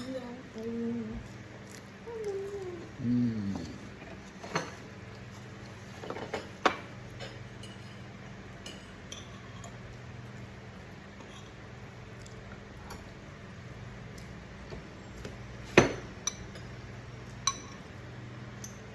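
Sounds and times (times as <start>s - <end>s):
steady low hum: 0.0s - 18.9s
cutlery clinking against dishes: 6.0s - 9.8s, 15.8s - 17.9s.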